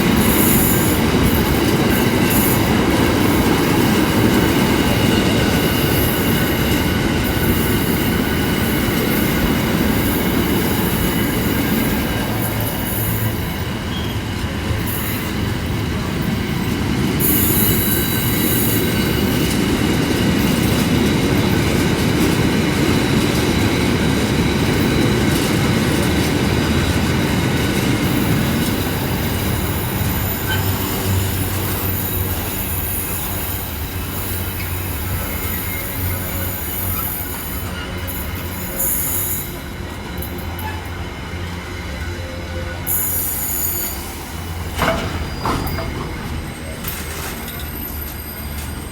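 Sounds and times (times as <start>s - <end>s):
train wheels clickety-clack: 0.0s - 48.9s
high wheel squeal: 0.1s - 19.6s, 26.7s - 48.9s.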